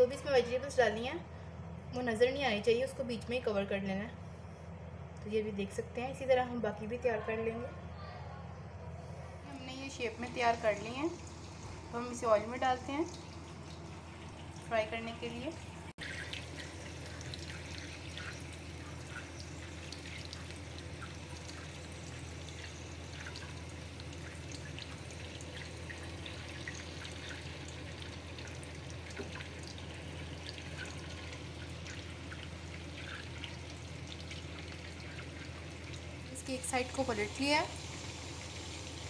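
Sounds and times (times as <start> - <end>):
food sizzling in hot oil: 16.0 - 39.0.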